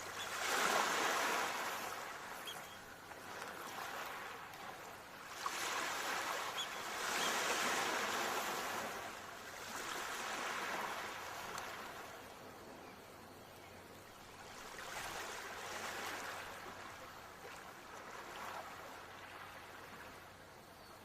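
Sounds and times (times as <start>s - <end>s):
ocean waves washing onto shore: 0.0s - 12.6s, 14.2s - 20.3s.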